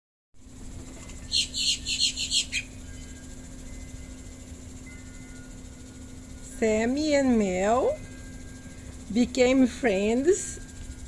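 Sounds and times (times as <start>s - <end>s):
faint steady hum: 0.4s - 11.0s
bird chirping high notes: 1.1s - 4.1s.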